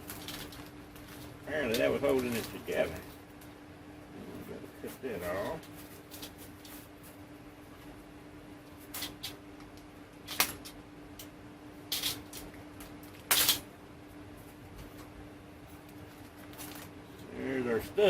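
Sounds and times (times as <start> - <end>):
faint steady hum: 0.0 - 18.0
packaging clicks and snips: 8.9 - 11.3, 13.1 - 13.6.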